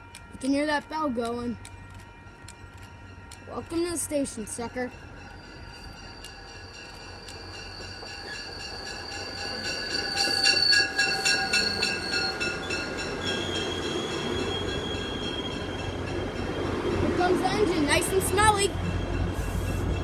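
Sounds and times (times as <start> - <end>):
warning bell ringing: 0.0 - 16.4
train low rumble: 0.0 - 20.0
train wheels and brakes squealing: 5.0 - 20.0.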